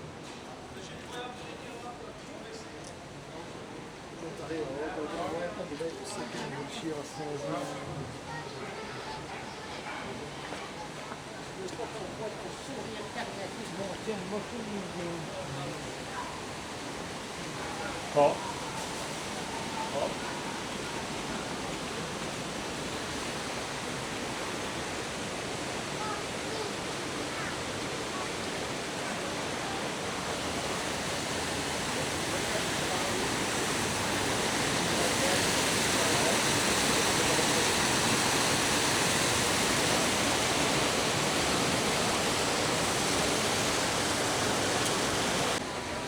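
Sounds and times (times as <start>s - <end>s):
rushing river water: 11.5s - 46.0s.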